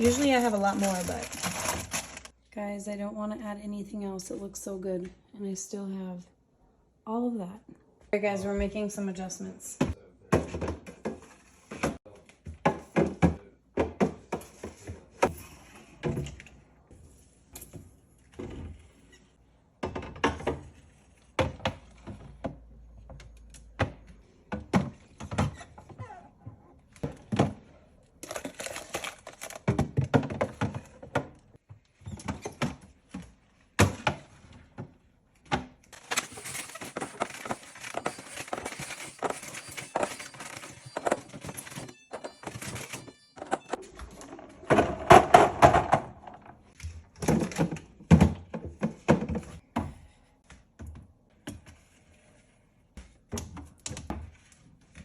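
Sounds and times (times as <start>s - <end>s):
containers clunking on shelves: 36.4s - 50.0s.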